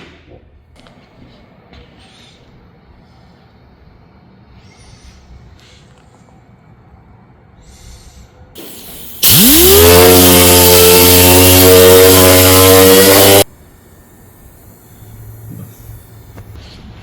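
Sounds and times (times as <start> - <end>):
power tool motor whine: 8.7 - 13.5.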